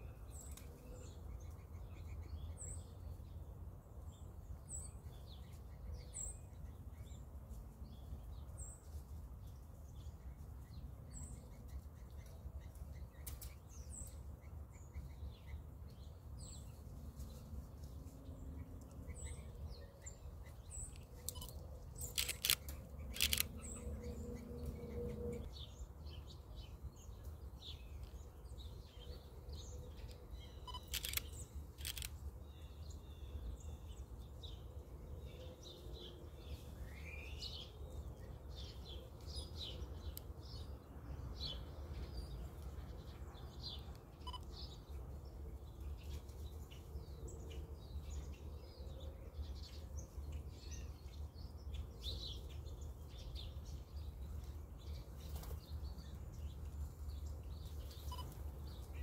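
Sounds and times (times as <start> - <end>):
small birds chirping: 0.0 - 59.0
sharp clicks: 20.9 - 23.8, 30.7 - 32.2.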